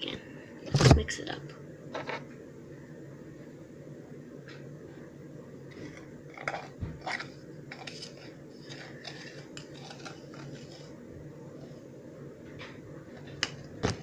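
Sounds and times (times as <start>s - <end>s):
steady low hum: 0.0s - 14.0s
utensil scraping a bowl: 5.7s - 11.0s.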